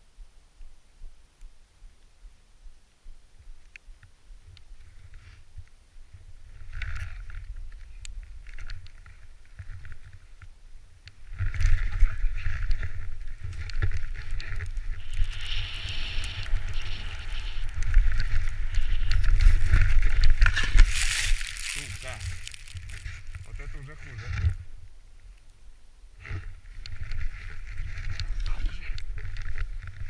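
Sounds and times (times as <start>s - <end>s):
wind buffeting microphone: 11.2s - 24.8s.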